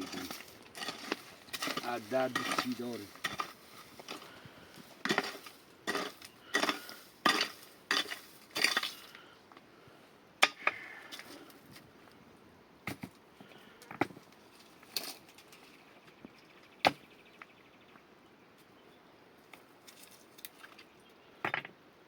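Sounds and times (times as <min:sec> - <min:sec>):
scraping against a pot: 0:00.0 - 0:04.4.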